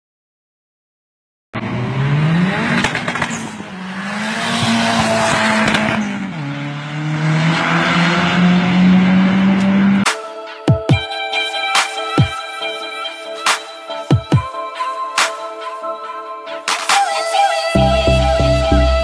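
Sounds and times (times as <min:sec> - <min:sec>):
car engine revving hard: 0:01.6 - 0:10.1.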